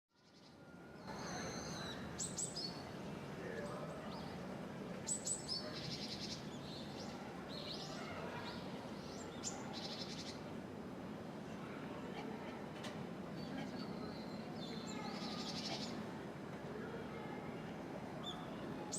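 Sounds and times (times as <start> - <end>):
small birds chirping: 0.3 - 2.9, 5.0 - 10.5, 13.4 - 16.0.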